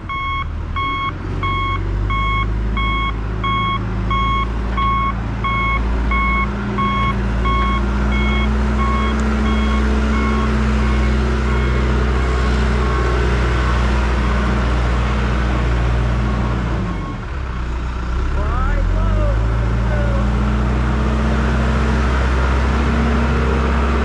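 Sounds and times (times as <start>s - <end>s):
diesel engine running: 0.0s - 24.0s
backup alarm beeping: 0.1s - 11.9s.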